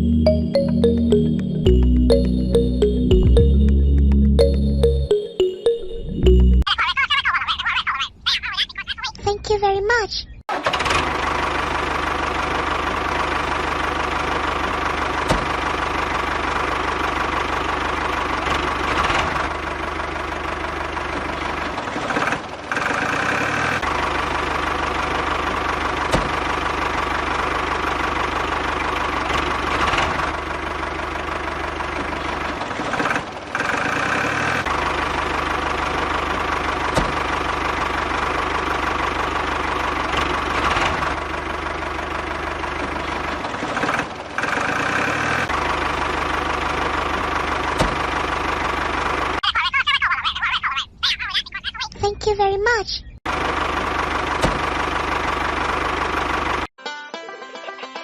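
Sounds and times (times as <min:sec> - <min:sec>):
diesel engine knocking: 0:10.5 - 0:49.4, 0:53.2 - 0:56.7.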